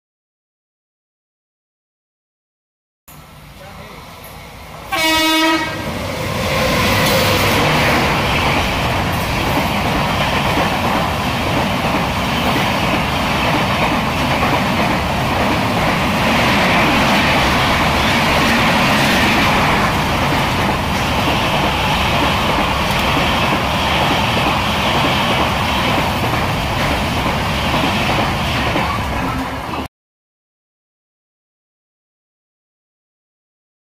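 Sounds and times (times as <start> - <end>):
locomotive horn blast: 4.9 - 5.9
train wheels clattering on rails: 6.4 - 29.9.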